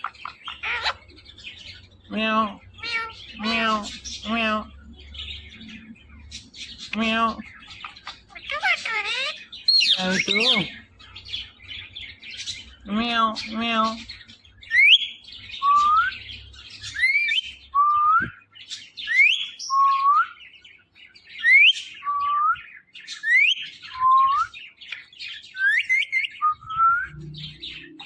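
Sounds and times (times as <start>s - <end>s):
soft scratchy chattering: 0.0s - 11.4s.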